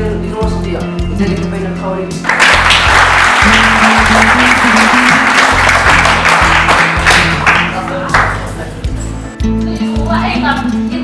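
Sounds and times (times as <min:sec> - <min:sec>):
background music: 0:00.0 - 0:11.0
audience clapping: 0:02.2 - 0:08.6.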